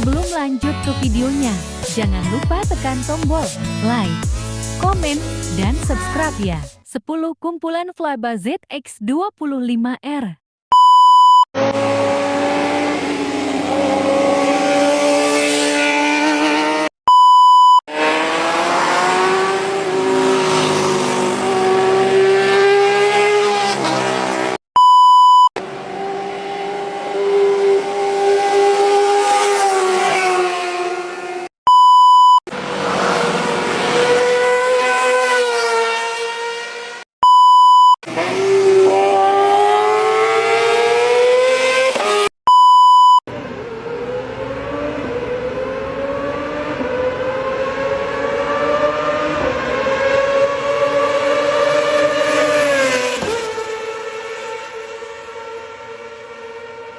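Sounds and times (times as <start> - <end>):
short electronic beep: 10.7 - 11.5, 17.1 - 17.8, 24.8 - 25.5, 31.7 - 32.4, 37.2 - 38.0, 42.5 - 43.2
motorcycles revving past: 17.9 - 24.6, 32.6 - 37.0.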